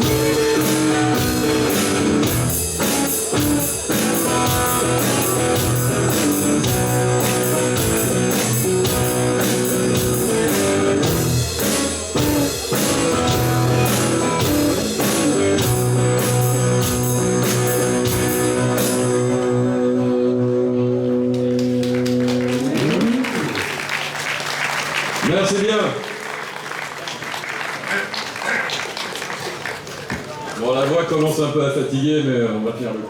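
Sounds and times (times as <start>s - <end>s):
drum beat: 0.0s - 18.5s
rock band playing: 0.0s - 25.4s.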